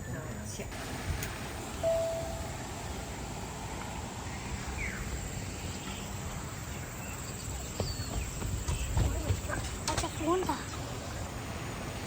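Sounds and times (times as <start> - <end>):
steady background hiss: 0.0 - 12.0
faint bird chirps: 4.2 - 9.2.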